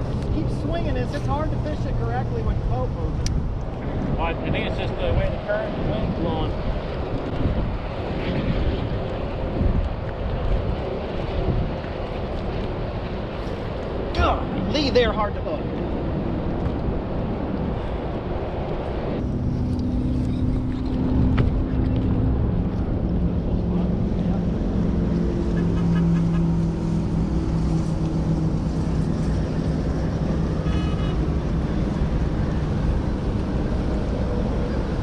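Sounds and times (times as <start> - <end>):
water: 0.0 - 35.0
wind: 0.0 - 35.0
outboard motorboat engine droning: 19.2 - 35.0.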